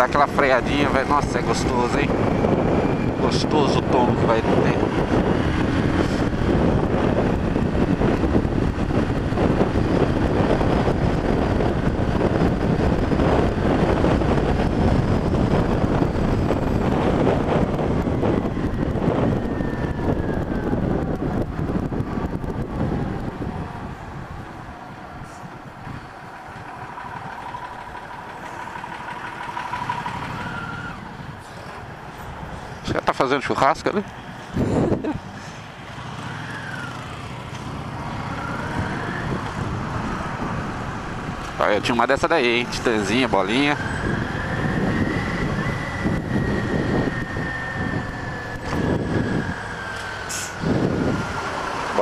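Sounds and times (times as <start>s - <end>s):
road and wind noise: 0.0s - 52.0s
motorcycle engine running: 26.3s - 30.8s.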